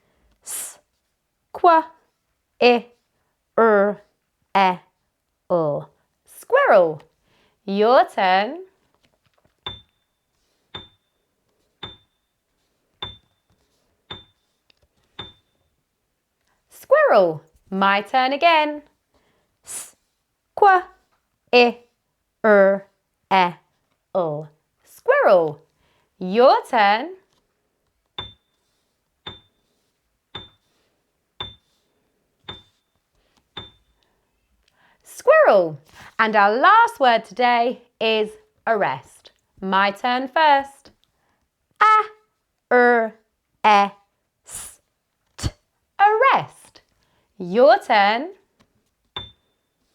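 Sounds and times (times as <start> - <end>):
timer ticks with high ring: 9.6 - 11.2, 11.8 - 12.4, 13.0 - 13.5, 14.1 - 14.4, 15.2 - 15.6, 28.2 - 28.6, 29.2 - 29.6, 30.4 - 30.7, 31.4 - 31.7, 32.5 - 33.0, 33.6 - 34.0, 49.2 - 49.6
ticking click with high ping: 10.8 - 11.1, 11.8 - 12.2.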